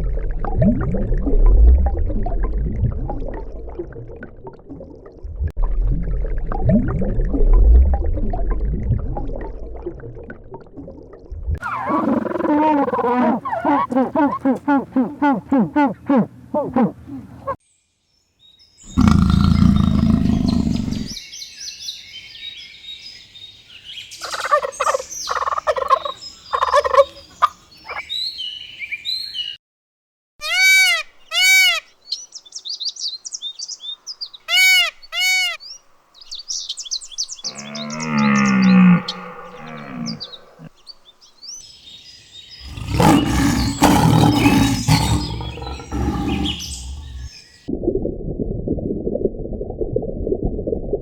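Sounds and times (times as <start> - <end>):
arched whistling calls: 11.6 - 14.6, 42.7 - 47.4
birds calling: 11.6 - 17.6, 18.9 - 21.2, 24.2 - 28.7, 34.4 - 41.2, 42.5 - 47.6
chirps: 18.9 - 21.2, 42.5 - 47.6.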